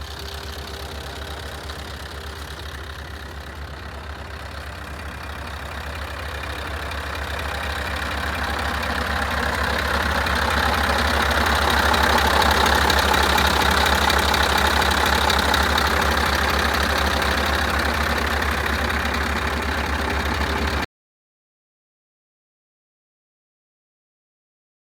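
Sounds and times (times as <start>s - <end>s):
diesel truck engine idling: 0.0s - 20.9s.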